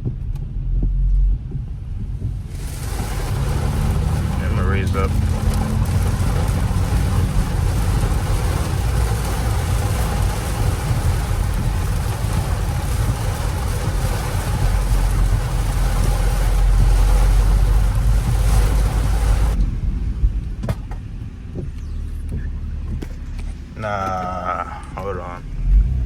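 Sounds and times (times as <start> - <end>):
car engine rumble: 0.0 - 26.0
tyre noise hiss: 2.5 - 19.6.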